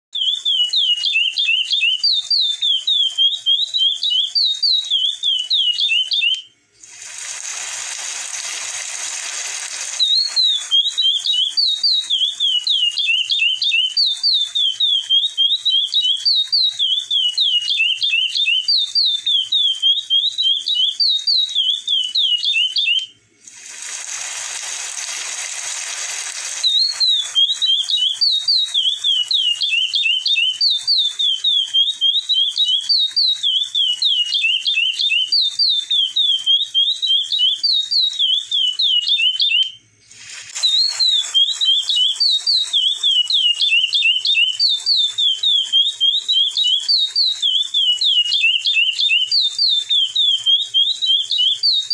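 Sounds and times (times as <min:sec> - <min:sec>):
finch singing high whistles: 0:00.2 - 0:51.9
rasping hiss: 0:06.8 - 0:10.0, 0:23.4 - 0:26.8, 0:40.0 - 0:41.3.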